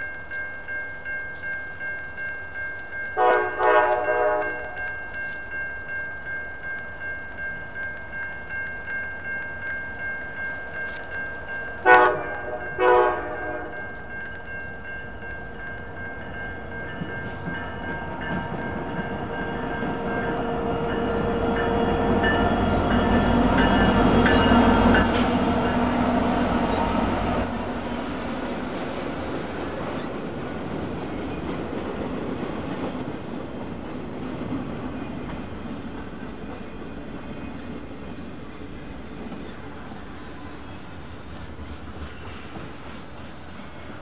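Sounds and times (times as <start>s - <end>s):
crossing warning bell ringing: 0.0s - 28.6s
train horn blasts: 3.2s - 4.8s, 11.8s - 13.9s.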